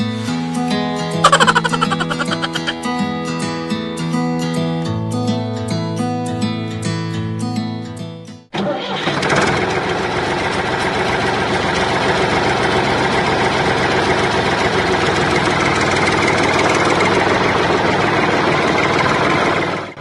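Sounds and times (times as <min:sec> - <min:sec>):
tractor engine running: 0:09.5 - 0:20.0.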